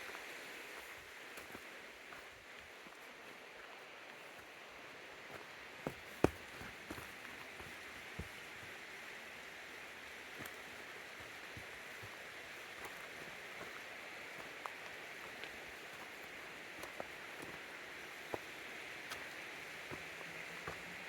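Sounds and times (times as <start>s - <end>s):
stream running: 0.0s - 21.0s.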